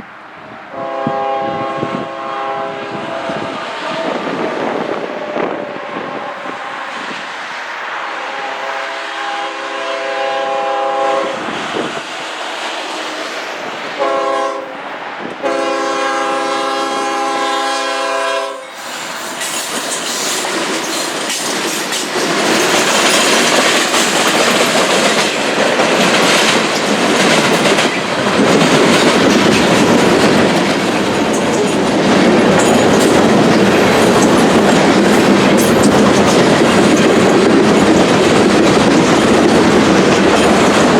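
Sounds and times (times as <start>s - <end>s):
train rumbling and clacking: 0.0s - 40.9s
locomotive horn blasts: 0.7s - 4.2s, 8.0s - 11.4s, 14.0s - 14.7s, 15.4s - 18.8s.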